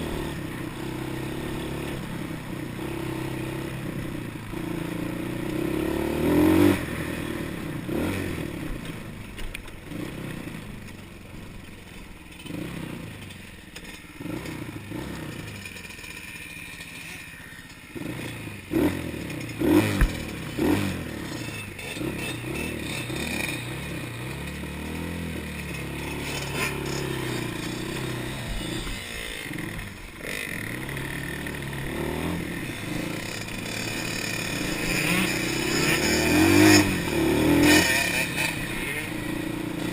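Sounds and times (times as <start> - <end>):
dirt bike engine revving: 0.0 - 8.8, 12.4 - 39.9
rattling and scraping: 15.2 - 39.4.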